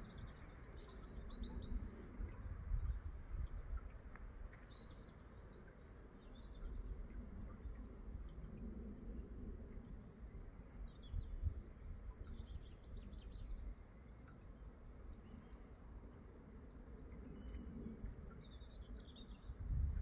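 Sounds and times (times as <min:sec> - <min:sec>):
small birds chirping and trilling: 0:00.0 - 0:08.0, 0:17.2 - 0:20.0
faint low rumble: 0:00.0 - 0:20.0.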